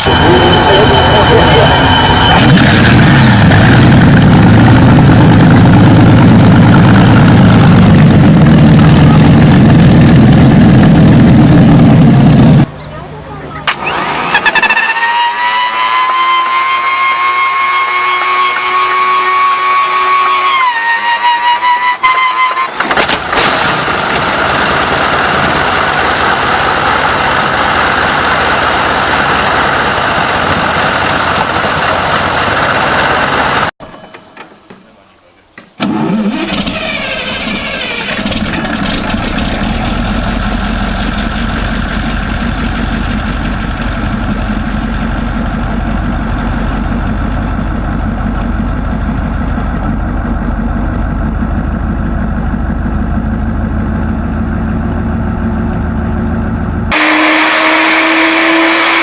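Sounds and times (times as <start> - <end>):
large engine rumbling: 0.0 - 33.8, 35.8 - 58.9
engine starting with bangs: 22.5 - 25.2, 35.7 - 39.9.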